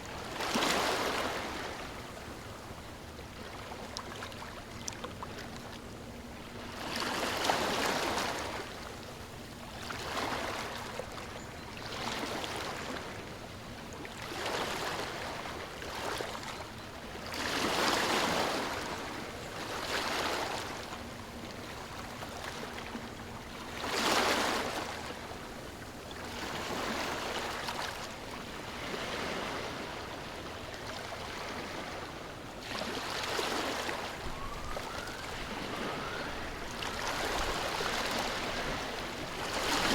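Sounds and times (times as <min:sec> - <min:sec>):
ocean waves washing onto shore: 0:26.2 - 0:39.9.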